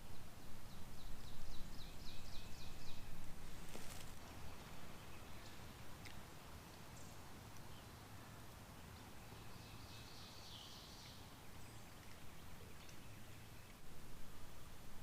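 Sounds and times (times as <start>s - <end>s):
distant small bird singing: 0.1s - 5.8s, 9.0s - 13.9s.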